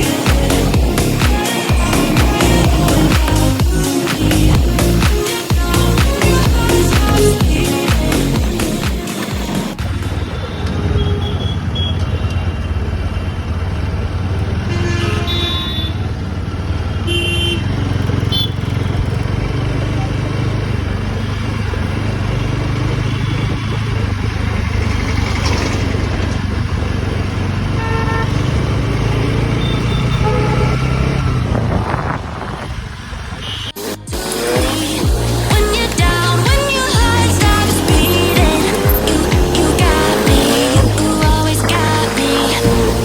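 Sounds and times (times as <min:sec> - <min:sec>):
motorcycle engine running: 0:00.0 - 0:43.0
wind and road noise: 0:00.0 - 0:43.0
vehicle horn toots: 0:10.0 - 0:12.8, 0:14.6 - 0:16.1, 0:17.0 - 0:19.0, 0:27.8 - 0:28.6, 0:29.4 - 0:31.2, 0:33.4 - 0:33.8.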